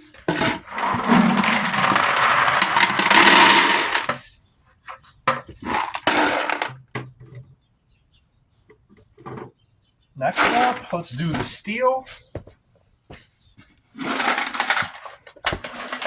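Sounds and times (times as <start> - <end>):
scrap metal rattling into bucket: 0.1 - 4.2, 5.6 - 6.8, 10.3 - 11.6, 14.0 - 16.0.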